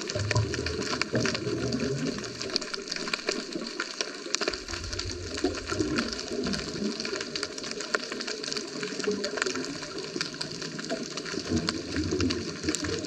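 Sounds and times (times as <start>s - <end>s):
diver's exhaled air bubbling: 0.0s - 3.5s, 4.4s - 7.8s
low underwater bubbling: 0.0s - 3.8s, 4.4s - 13.0s
underwater crackle of clicks: 0.0s - 13.0s.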